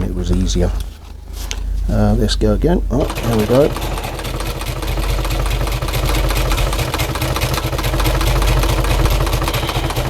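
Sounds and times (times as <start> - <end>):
motor hum: 0.0 - 10.0
sewing machine needle clatter: 3.0 - 10.0.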